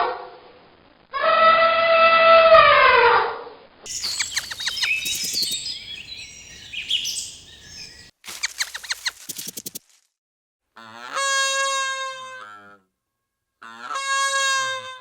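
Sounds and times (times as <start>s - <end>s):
bird chirping and peeping: 3.9s - 9.8s
high falling animal call: 3.9s - 9.8s
rapid sharp clicking calls: 3.9s - 10.0s.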